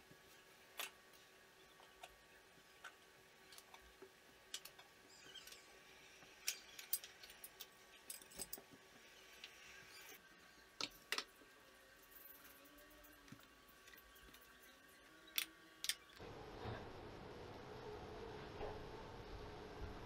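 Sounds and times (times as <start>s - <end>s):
small objects clicking and tapping: 2.8s - 5.7s, 10.8s - 11.5s.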